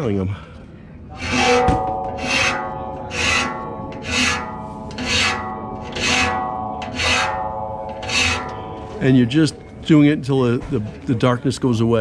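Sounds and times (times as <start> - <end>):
steel blade ringing: 1.1 - 9.3
hand file rasping on saw blade: 1.2 - 8.7.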